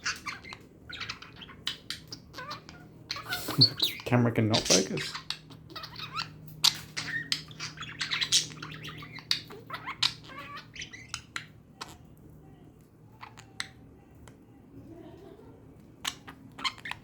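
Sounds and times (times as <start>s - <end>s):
budgerigars chirping: 0.0s - 12.0s, 16.0s - 17.0s.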